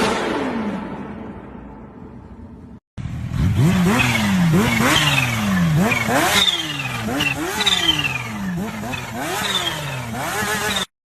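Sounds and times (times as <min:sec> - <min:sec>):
motorcycle engine throttle blips: 0:03.0 - 0:10.9.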